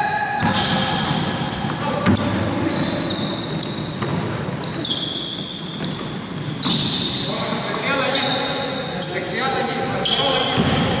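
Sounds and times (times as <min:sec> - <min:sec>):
sneakers squeaking: 0:00.0 - 0:11.0
basketball bouncing: 0:00.4 - 0:02.4, 0:04.0 - 0:04.4, 0:10.6 - 0:11.0.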